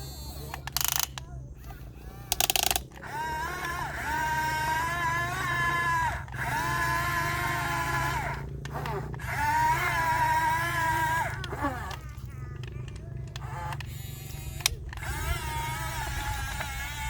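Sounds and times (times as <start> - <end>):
low hum: 0.0 - 17.0
toy excavator motor whining: 0.0 - 17.0.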